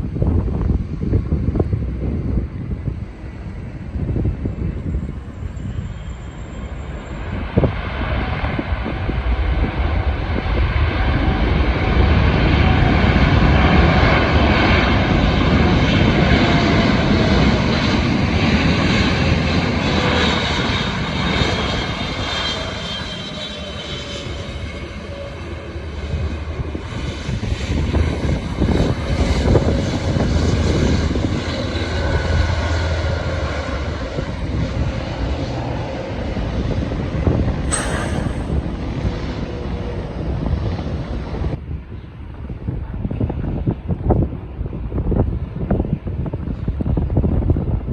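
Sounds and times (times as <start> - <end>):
airliner engine noise: 0.0 - 47.9
jet whine falling in pitch: 37.7 - 39.6.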